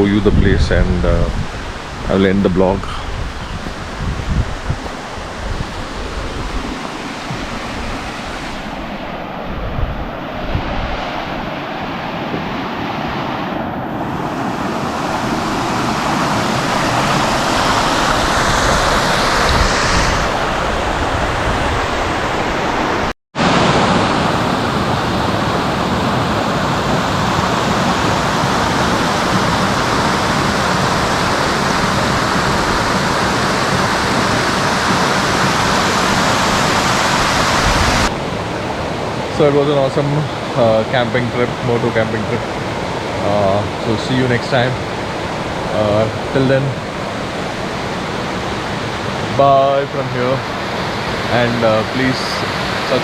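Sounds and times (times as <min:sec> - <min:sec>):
steady rushing outdoor noise: 0:00.0 - 0:53.0.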